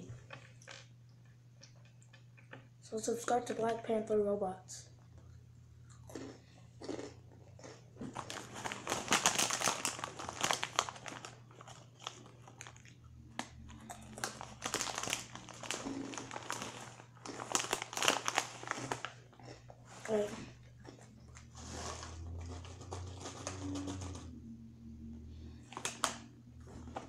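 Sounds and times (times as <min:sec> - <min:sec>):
low steady hum: 0:00.0 - 0:27.0
crunchy snack being chewed: 0:05.1 - 0:24.3.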